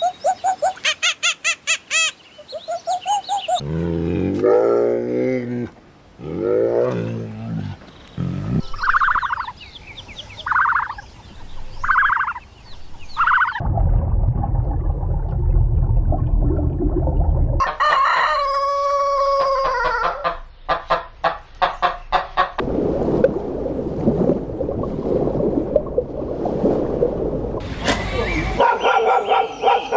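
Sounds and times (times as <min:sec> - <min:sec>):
chickens calling: 0:00.0 - 0:03.6, 0:07.8 - 0:13.6, 0:17.6 - 0:22.6, 0:28.0 - 0:29.9
chickens clucking: 0:08.3 - 0:09.6, 0:10.2 - 0:13.6
low rumbling noise: 0:12.6 - 0:17.6, 0:22.6 - 0:28.6
rooster crowing: 0:17.6 - 0:20.4.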